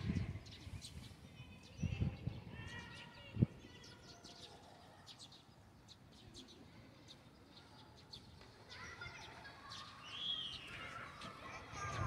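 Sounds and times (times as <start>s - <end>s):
small birds chirping: 0.0s - 12.0s
distant children shouting: 8.6s - 12.0s.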